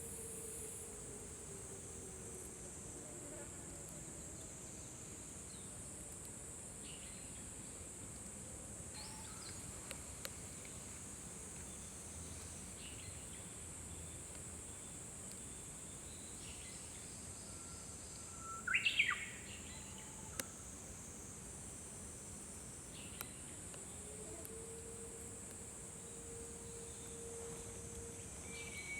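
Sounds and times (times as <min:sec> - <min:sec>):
high insect drone: 0:00.0 - 0:28.9
faint clicks: 0:20.3 - 0:20.6.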